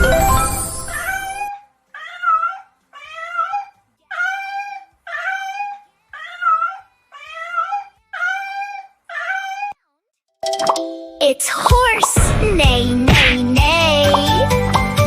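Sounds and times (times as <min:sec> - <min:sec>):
animal high-pitched cry: 0:01.0 - 0:09.8.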